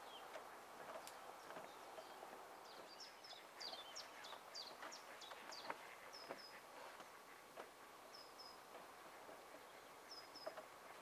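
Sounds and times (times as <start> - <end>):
faint clicks: 0.2 - 2.9.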